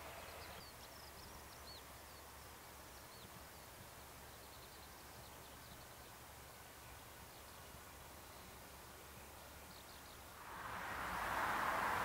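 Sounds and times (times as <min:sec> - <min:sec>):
low steady rumble: 0:10.4 - 0:12.0.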